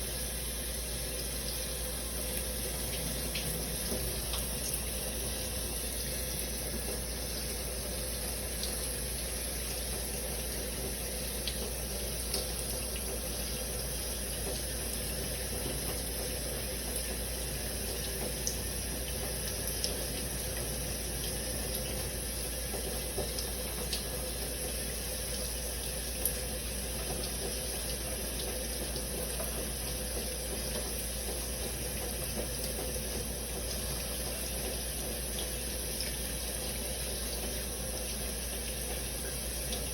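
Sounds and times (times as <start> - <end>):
shower water splashing: 0.0 - 39.9
water drops ticking: 2.3 - 5.4.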